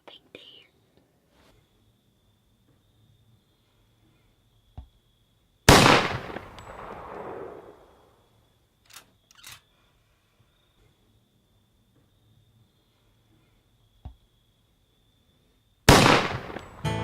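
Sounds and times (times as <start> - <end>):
echoing gunshot: 5.7 - 8.2, 15.9 - 16.9.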